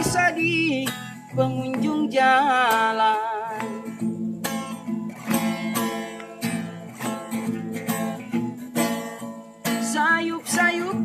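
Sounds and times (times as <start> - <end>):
person singing: 0.0 - 4.0, 9.8 - 11.0
acoustic guitar strumming: 0.0 - 11.0.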